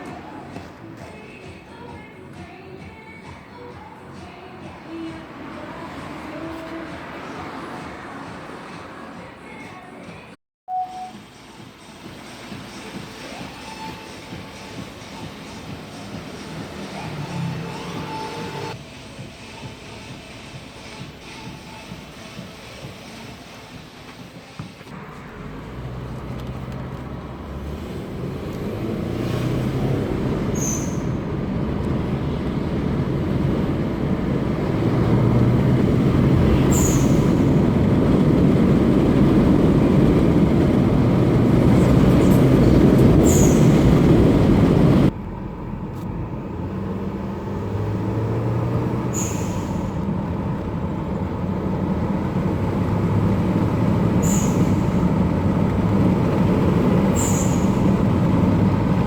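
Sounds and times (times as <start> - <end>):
road noise: 0.0 - 59.0
turbo car engine: 12.0 - 23.0, 24.8 - 59.0
blow-off valve chirp: 30.5 - 31.2, 36.6 - 37.4, 43.2 - 43.9, 49.0 - 50.0, 54.2 - 55.0, 57.1 - 58.0.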